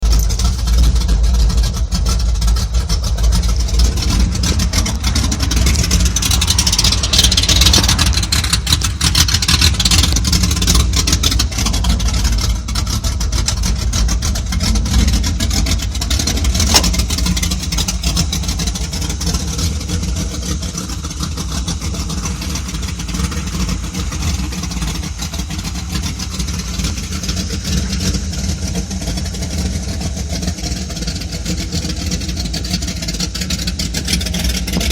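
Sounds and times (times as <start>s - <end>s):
truck engine running: 0.0s - 34.9s.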